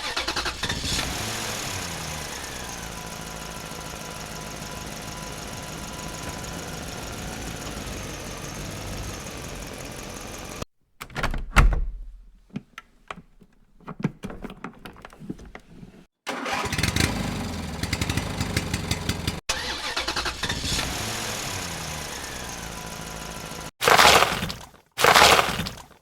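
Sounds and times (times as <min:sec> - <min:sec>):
vehicle engine starting and running: 0:00.0 - 0:10.7, 0:16.3 - 0:24.4.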